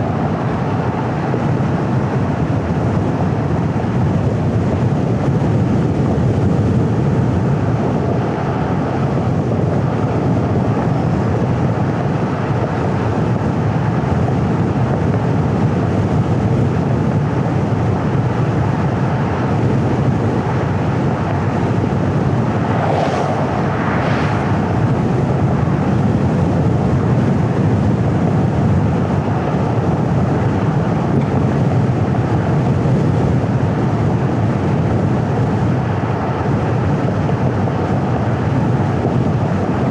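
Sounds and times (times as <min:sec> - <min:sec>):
car road and engine rumble: 0:00.0 - 0:39.9
vehicles whooshing past: 0:20.9 - 0:26.2.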